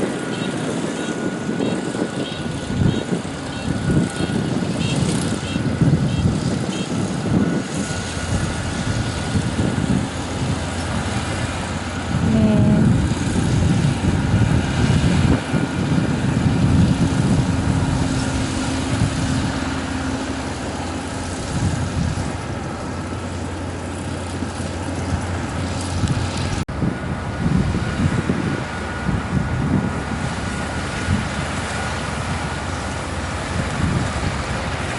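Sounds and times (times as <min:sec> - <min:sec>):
combine harvester rumbling: 0:00.0 - 0:34.9
brief pitched tone: 0:12.2 - 0:13.0.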